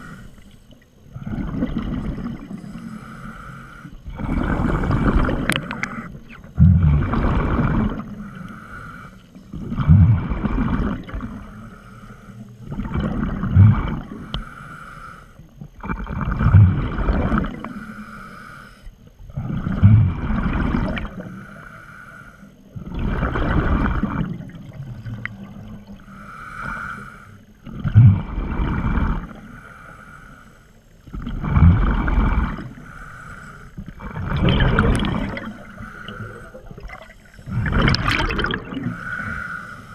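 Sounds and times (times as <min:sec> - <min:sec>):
regulator hiss on inhale: 0:00.0 - 0:00.8, 0:02.4 - 0:06.4, 0:08.1 - 0:09.6, 0:10.2 - 0:12.7, 0:13.9 - 0:15.6, 0:17.6 - 0:19.1, 0:21.1 - 0:22.8, 0:25.9 - 0:27.7, 0:28.4 - 0:31.2, 0:31.8 - 0:34.1, 0:35.0 - 0:37.8, 0:38.8 - 0:39.9
exhaled bubbles gurgling: 0:00.0 - 0:08.8, 0:09.5 - 0:11.8, 0:12.5 - 0:14.4, 0:15.6 - 0:17.9, 0:19.3 - 0:21.5, 0:22.7 - 0:26.4, 0:27.6 - 0:29.6, 0:31.0 - 0:39.9.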